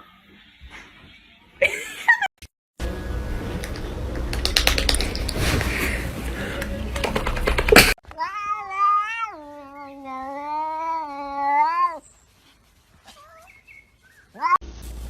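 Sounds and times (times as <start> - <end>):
clatter of clicks: 3.6 - 5.4
cat yowling meow: 8.2 - 12.0, 14.3 - 14.6.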